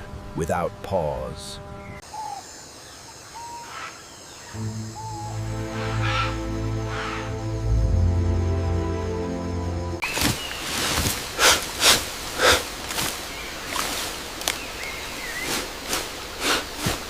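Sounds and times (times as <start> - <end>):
faint bird chirps: 1.8 - 7.3
steps crunching dry leaves: 10.0 - 15.8.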